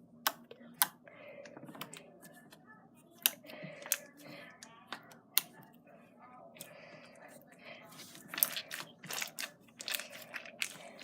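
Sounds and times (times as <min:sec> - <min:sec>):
slime squished by hand: 0:08.0 - 0:11.0.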